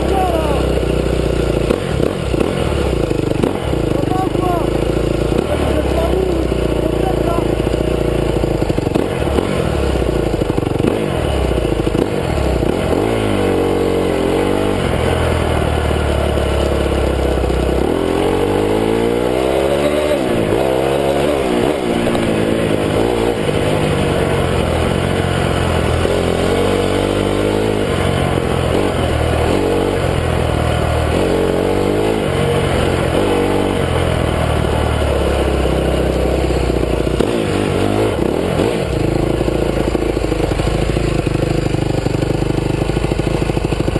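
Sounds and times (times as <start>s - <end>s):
motocross bike engine revving: 0.0s - 43.9s.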